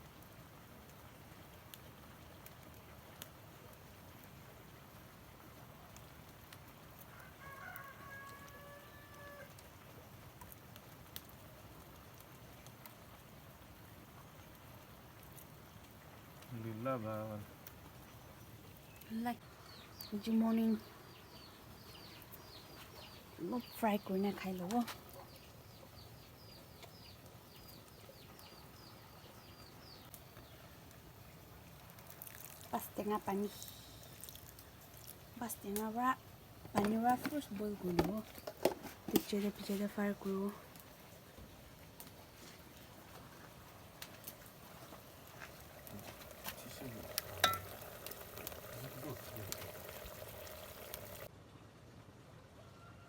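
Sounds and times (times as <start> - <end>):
faint rooster crowing: 7.0 - 9.6, 52.4 - 53.0.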